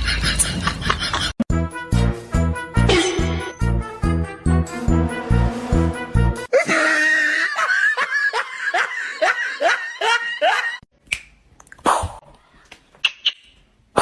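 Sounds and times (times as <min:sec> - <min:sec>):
person laughing: 0:02.9 - 0:03.6, 0:06.5 - 0:10.8.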